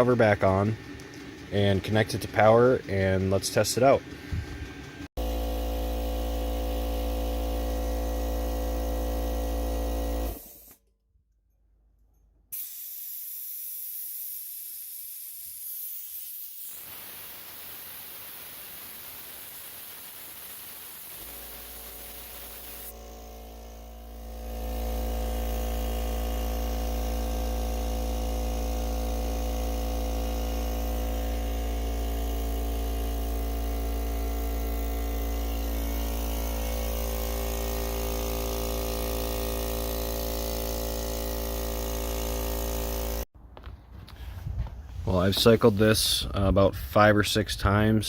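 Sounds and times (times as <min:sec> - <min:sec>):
air compressor running: 0:00.0 - 0:10.8, 0:12.5 - 0:43.3
steady hiss: 0:12.6 - 0:22.9.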